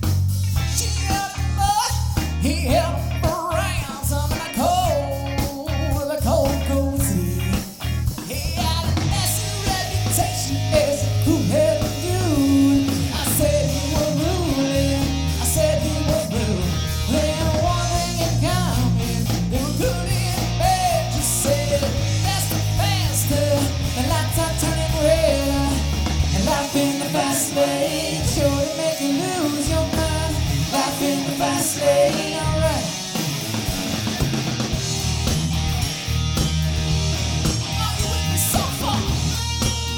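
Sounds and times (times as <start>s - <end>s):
rock band playing live: 0.0s - 39.9s
singer: 0.6s - 33.2s, 37.7s - 39.6s.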